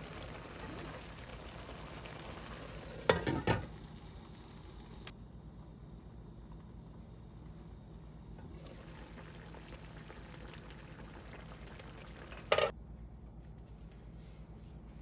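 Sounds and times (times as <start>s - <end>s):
loud kitchen clatter: 3.1s - 3.7s.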